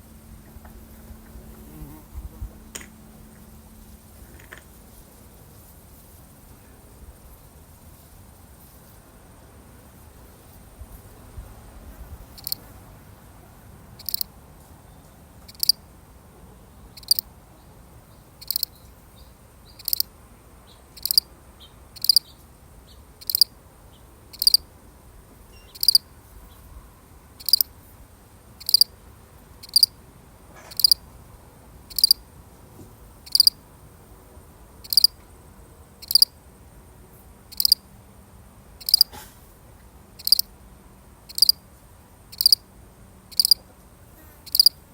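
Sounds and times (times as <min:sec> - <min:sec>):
cricket chirping: 0:12.4 - 0:12.6, 0:14.0 - 0:14.4, 0:15.5 - 0:15.8, 0:16.9 - 0:17.3, 0:18.3 - 0:18.9, 0:19.6 - 0:21.3, 0:22.0 - 0:22.3, 0:22.9 - 0:23.6, 0:24.3 - 0:24.7, 0:25.5 - 0:26.6, 0:27.4 - 0:27.8, 0:28.6 - 0:29.0, 0:29.6 - 0:30.0, 0:30.6 - 0:31.0, 0:31.9 - 0:32.3, 0:33.2 - 0:33.6, 0:34.7 - 0:37.9, 0:38.8 - 0:39.2, 0:40.2 - 0:40.5, 0:41.3 - 0:41.6, 0:42.3 - 0:42.7, 0:43.3 - 0:43.7, 0:44.4 - 0:44.8.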